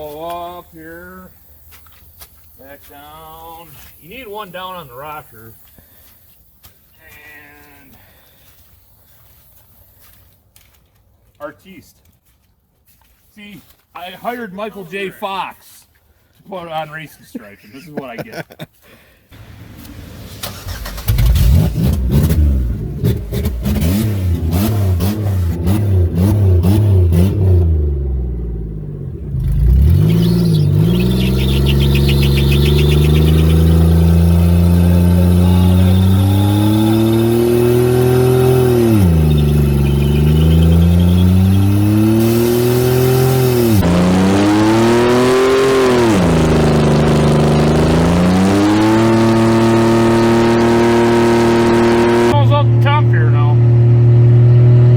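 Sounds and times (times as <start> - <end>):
car engine revving: 19.4 - 54.9
faint tire squeal: 29.7 - 42.3.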